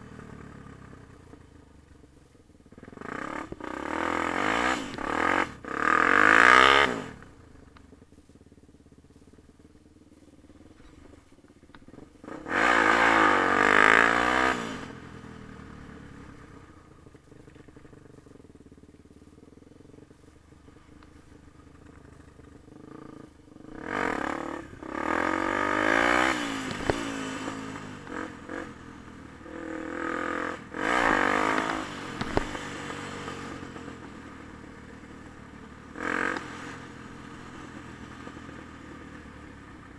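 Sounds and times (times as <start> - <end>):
dirt bike engine revving: 2.8 - 7.3, 11.9 - 16.6, 20.2 - 38.1.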